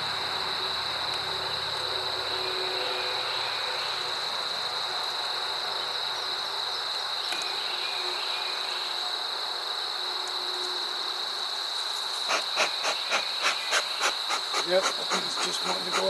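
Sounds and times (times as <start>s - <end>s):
honey bees buzzing: 12.2s - 16.0s.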